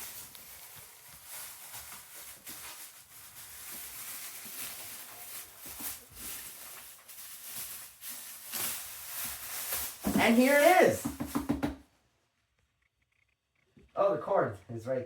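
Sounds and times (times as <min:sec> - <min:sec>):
packaging rustling and scraping: 0:00.0 - 0:11.0.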